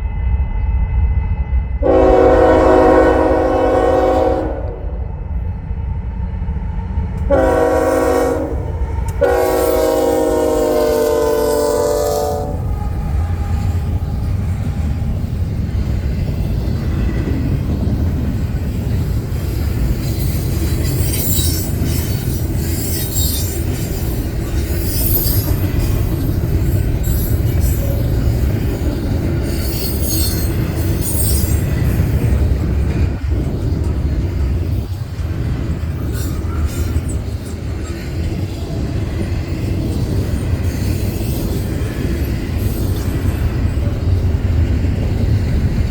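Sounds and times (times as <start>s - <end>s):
freight train rumbling past: 0.0s - 45.9s
locomotive horn blast: 1.8s - 5.0s, 7.3s - 14.4s
high-pitched wheel squeals: 20.2s - 28.3s, 29.4s - 31.8s.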